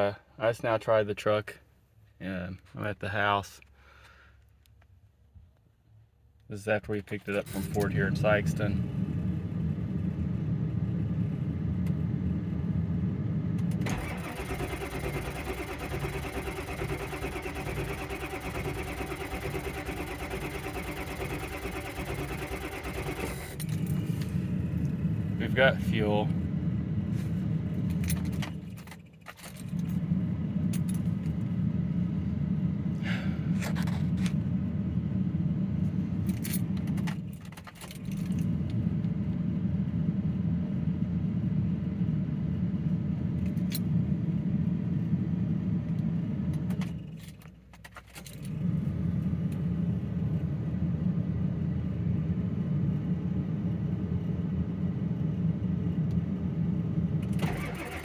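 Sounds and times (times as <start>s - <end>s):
truck engine cranking without starting: 13.6s - 26.2s, 57.2s - 58.0s.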